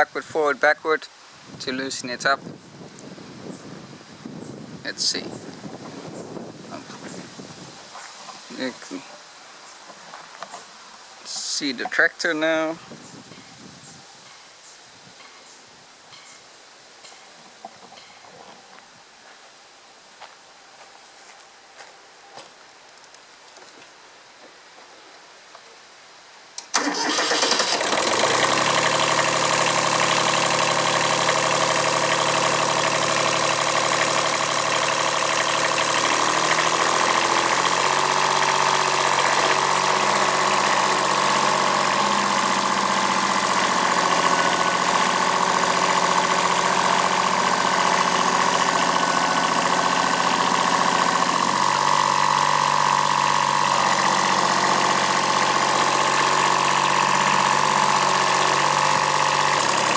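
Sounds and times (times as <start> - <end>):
diesel tractor engine running: 26.7 - 59.9.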